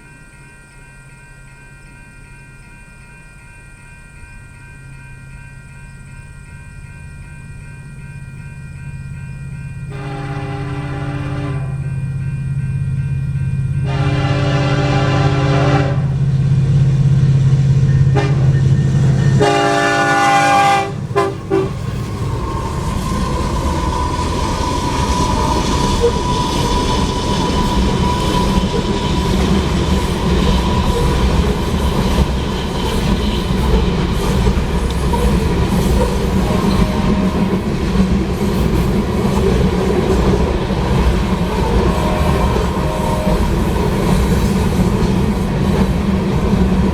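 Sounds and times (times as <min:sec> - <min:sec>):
high ringing wheel tone: 0:00.0 - 0:46.6
train horn blasts: 0:09.9 - 0:12.1, 0:13.8 - 0:16.4, 0:17.8 - 0:22.0, 0:36.0 - 0:37.7, 0:41.7 - 0:44.8.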